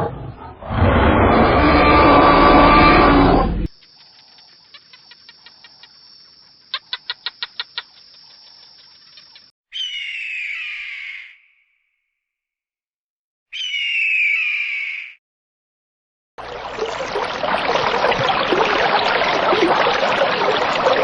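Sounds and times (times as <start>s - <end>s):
loud noisy animal call: 0.6s - 3.7s
bird chirps: 3.8s - 11.9s, 13.5s - 15.2s
harsh falling bird call: 9.7s - 11.7s, 13.5s - 15.2s.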